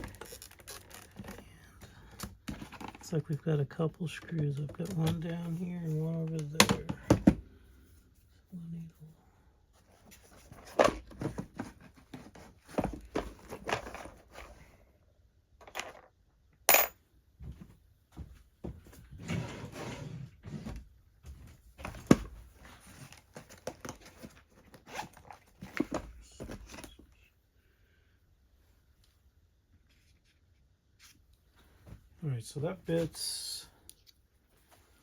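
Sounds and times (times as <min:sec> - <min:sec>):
tools and small parts rattling: 0:15.6 - 0:16.1.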